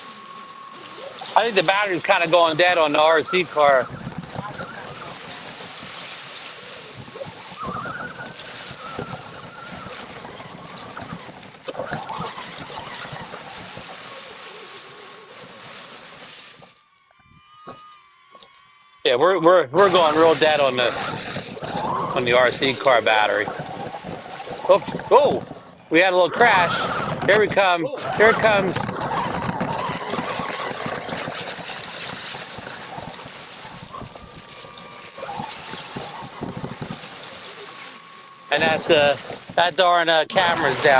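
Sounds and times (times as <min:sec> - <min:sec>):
crackle and rustle of driving: 0:00.0 - 0:16.9, 0:19.8 - 0:40.9
electric toy truck motor whining: 0:00.0 - 0:40.9
person talking: 0:22.2 - 0:23.5, 0:38.5 - 0:40.9.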